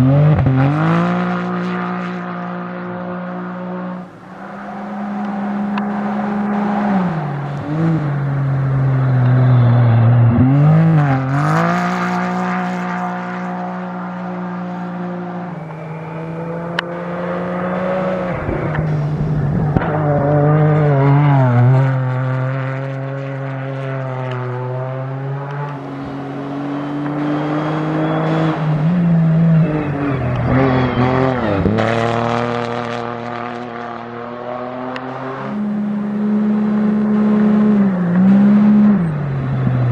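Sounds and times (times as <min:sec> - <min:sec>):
vehicle engines running hard: 0:00.0 - 0:39.9.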